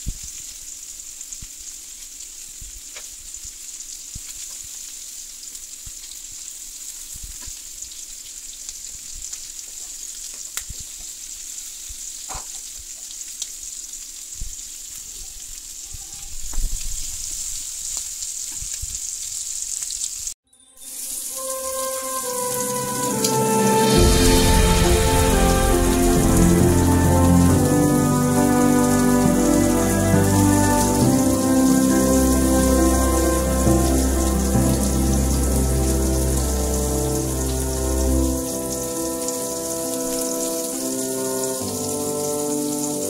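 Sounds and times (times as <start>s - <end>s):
food sizzling in a frying pan: 0.0s - 43.0s
steady hiss: 0.0s - 43.0s
music: 20.5s - 43.0s.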